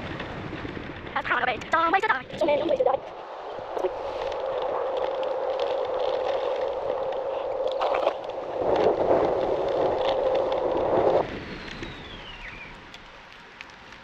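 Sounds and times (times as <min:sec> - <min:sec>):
scooter rolling noise: 0:00.0 - 0:14.0.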